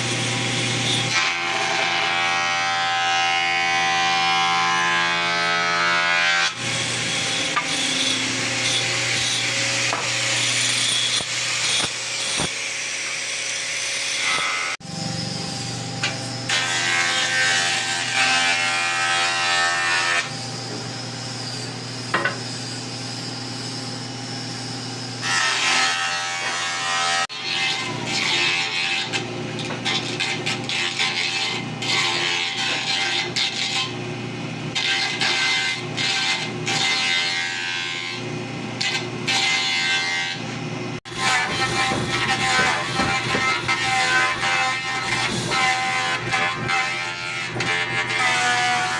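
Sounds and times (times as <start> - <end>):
planer cutting wooden board: 0.0 - 23.0, 25.2 - 34.0, 34.7 - 48.9.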